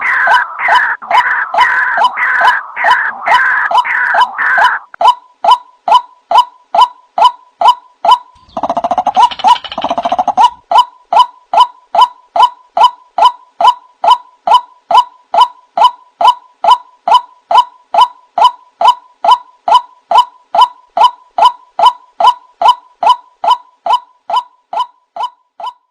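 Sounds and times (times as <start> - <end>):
harsh bird chattering: 8.3 - 10.8.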